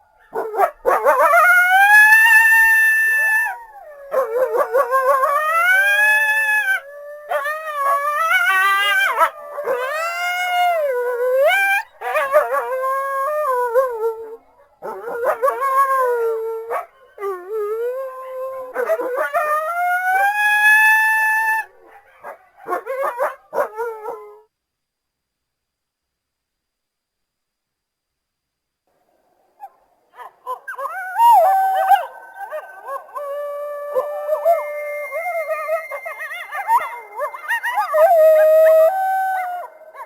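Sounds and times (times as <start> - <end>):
coyotes howling: 0.2 - 24.4, 30.2 - 40.0
coyotes yipping: 29.6 - 40.0.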